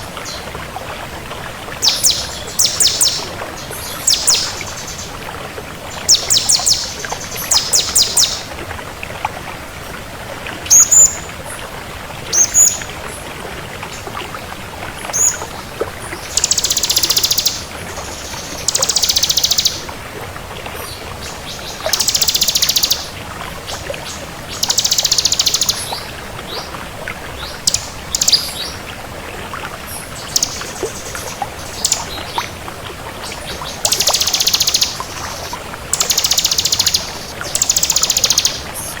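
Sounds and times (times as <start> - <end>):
bird song with clicks and chirps: 1.8 - 5.0, 6.0 - 8.5, 16.3 - 19.9, 21.6 - 23.8, 24.5 - 26.1, 27.4 - 28.8, 30.2 - 32.5, 33.3 - 39.0.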